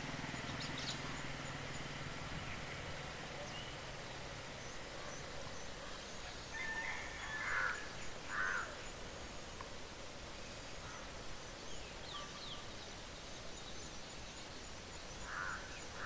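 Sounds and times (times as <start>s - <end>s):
passing vehicle engine hum: 0.0s - 5.3s
birds calling harshly: 0.0s - 9.1s, 14.8s - 16.0s
roadside noise: 0.0s - 16.0s.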